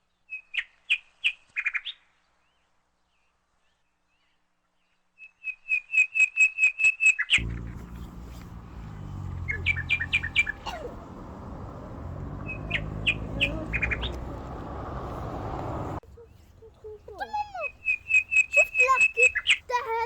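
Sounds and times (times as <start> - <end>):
low rumbling background: 7.4 - 16.0
small birds chirping: 7.4 - 20.0.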